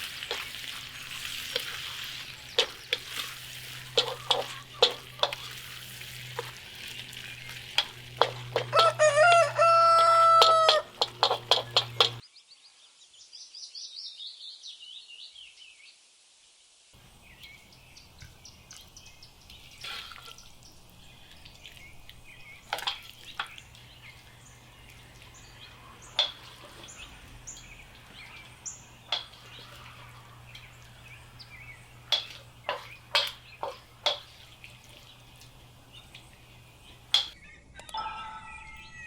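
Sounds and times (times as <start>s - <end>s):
low steady hum: 0.0s - 12.2s
small birds chirping: 0.0s - 15.6s, 17.0s - 39.0s
sharp clicks and taps: 10.4s - 12.2s.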